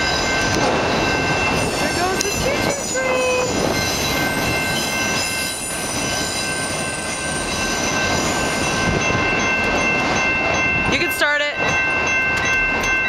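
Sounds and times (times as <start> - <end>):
train wheels clattering and rumbling: 0.0 - 13.0
high wheel squeal: 2.8 - 8.7.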